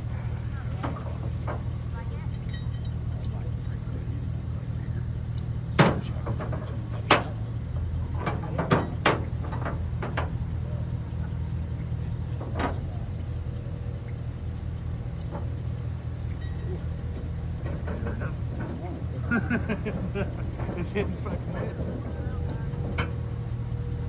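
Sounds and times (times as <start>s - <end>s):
sharp knocks and rattles: 0.0s - 3.0s, 5.7s - 10.6s
truck engine drone: 0.0s - 24.0s.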